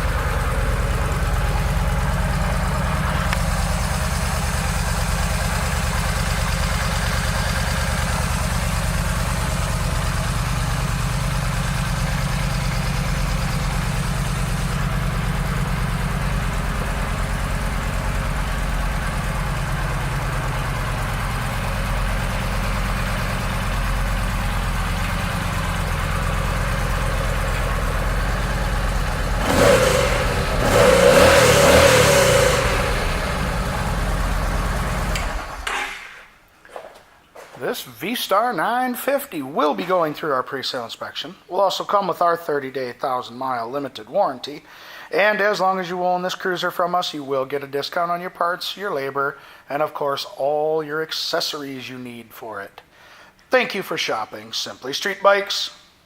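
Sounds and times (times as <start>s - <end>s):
motorcycle engine idling: 0.0s - 35.9s.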